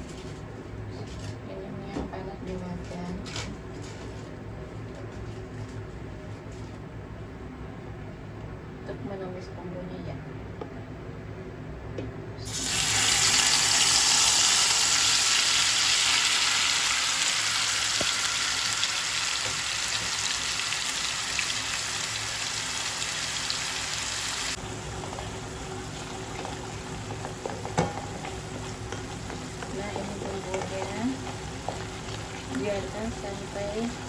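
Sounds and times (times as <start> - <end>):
spice paste sizzling in hot oil: 12.4 - 34.0.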